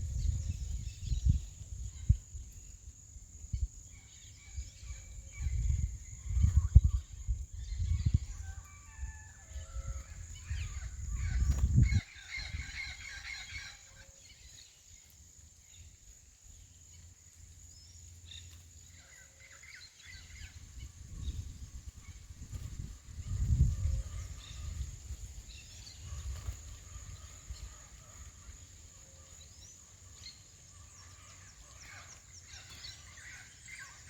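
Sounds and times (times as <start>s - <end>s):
wind rumble on microphone: 0.0s - 13.9s, 19.9s - 31.2s.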